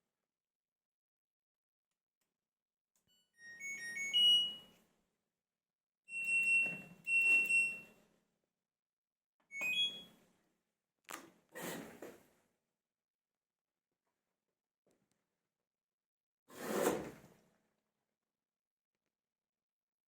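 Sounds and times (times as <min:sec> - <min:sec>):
washing machine electronic chimes: 0:03.1 - 0:04.8, 0:06.1 - 0:08.0, 0:09.5 - 0:10.2.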